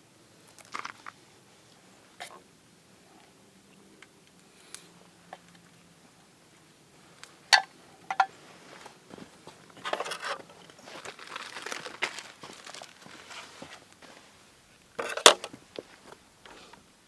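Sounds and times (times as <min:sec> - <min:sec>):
crinkling and rustling handling noise: 0:00.4 - 0:02.4, 0:06.9 - 0:17.0.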